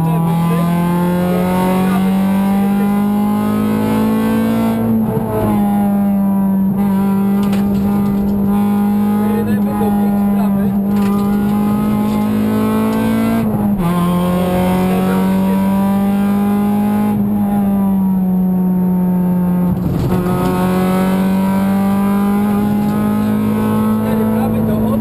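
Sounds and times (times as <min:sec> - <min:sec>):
car engine at high revs: 0:00.0 - 0:25.0.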